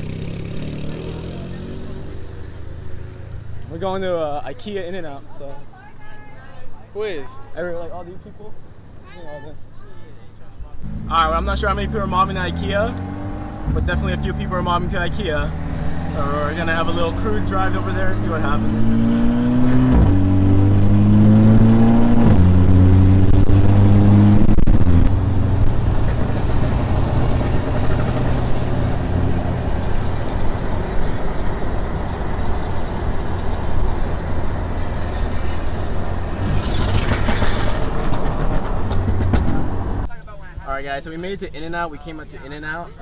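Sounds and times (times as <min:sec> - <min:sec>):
car engine accelerating: 0:00.0 - 0:03.8, 0:10.8 - 0:40.1
road and tyre noise: 0:00.0 - 0:43.0.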